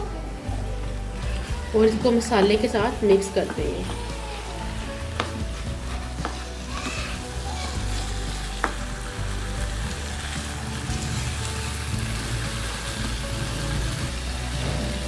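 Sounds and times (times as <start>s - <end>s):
spinach sizzling in hot oil: 0.4s - 15.0s
spatula tapping and scraping pan: 5.0s - 7.0s, 8.5s - 8.9s.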